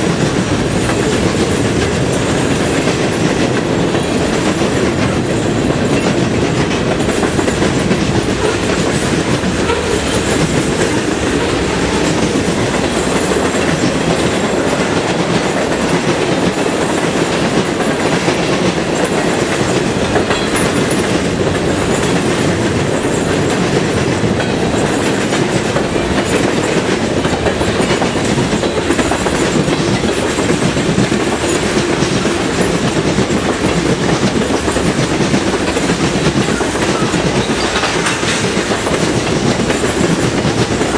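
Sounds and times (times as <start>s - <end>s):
freight train cars rolling past: 0.0s - 40.9s
wheels clacking over rail joints: 0.0s - 40.9s.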